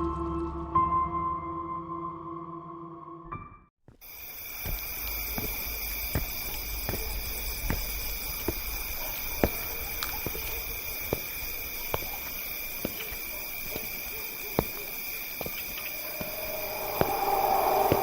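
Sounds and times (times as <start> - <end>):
steady hissing ambience: 4.0 - 18.0.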